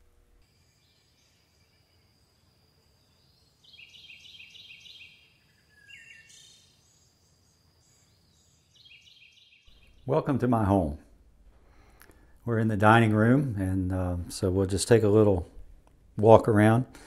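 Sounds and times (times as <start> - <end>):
thin steady high whine: 0.0 - 17.0
bird chirping: 0.5 - 10.8.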